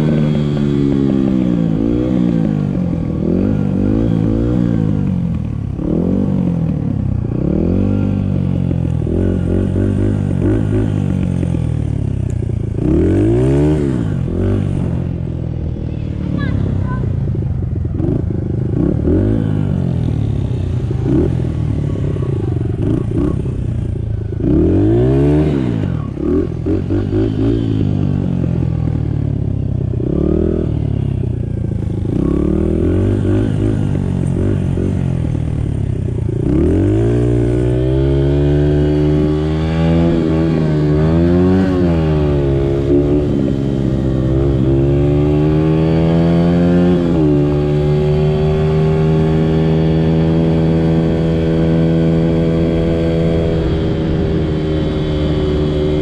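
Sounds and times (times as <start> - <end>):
dirt bike engine revving: 12.6 - 17.0, 18.0 - 28.9, 30.0 - 56.0.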